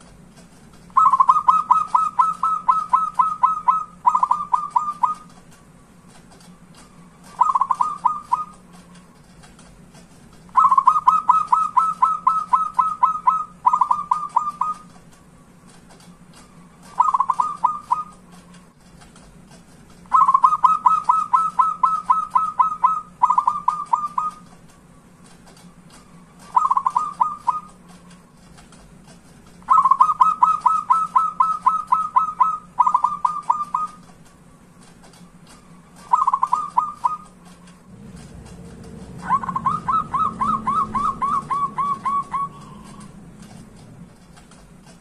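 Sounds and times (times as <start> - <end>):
doves cooing staccato: 0.9 - 5.3, 7.0 - 9.0, 10.5 - 14.9, 16.8 - 18.3, 20.1 - 24.5, 25.7 - 27.8, 29.6 - 34.0, 35.3 - 44.0.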